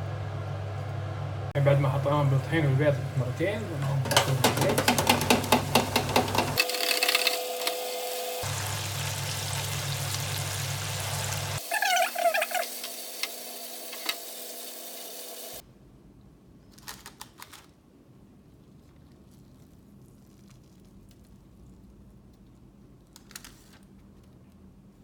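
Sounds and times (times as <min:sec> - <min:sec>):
hot oil sizzling: 0:04.1 - 0:15.6.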